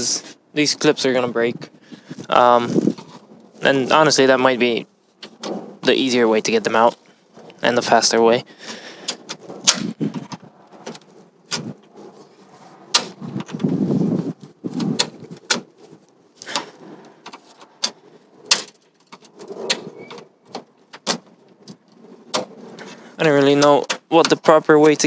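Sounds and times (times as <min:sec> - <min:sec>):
plastic rubbing scrape: 0:02.1 - 0:04.2, 0:05.0 - 0:06.0, 0:08.6 - 0:25.0.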